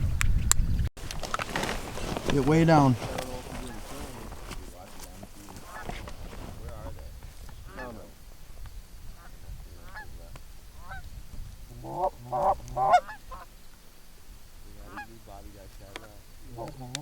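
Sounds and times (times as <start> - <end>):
geese honking: 5.5 - 6.1, 7.6 - 8.2, 9.1 - 11.1, 11.7 - 17.0.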